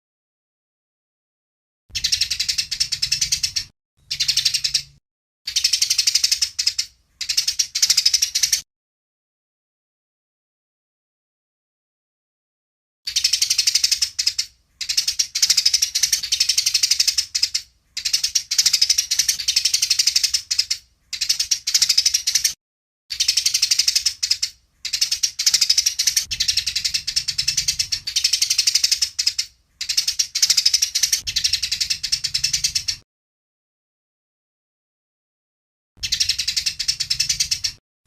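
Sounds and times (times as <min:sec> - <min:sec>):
sparrows chattering: 0:01.9 - 0:08.6, 0:13.1 - 0:33.0, 0:36.0 - 0:37.8.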